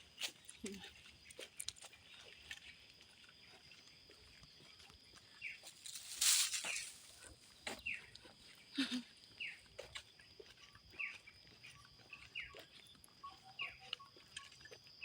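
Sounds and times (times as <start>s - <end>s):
high-pitched insect whine: 5.6s - 7.2s.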